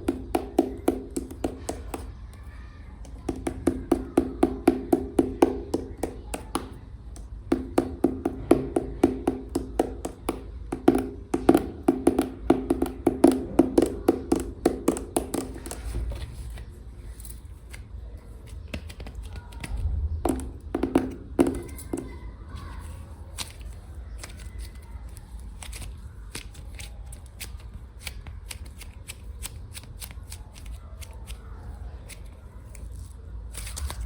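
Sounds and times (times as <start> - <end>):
fingernails tapping on clay pot: 0.0 - 2.2, 3.0 - 16.0, 20.2 - 22.2.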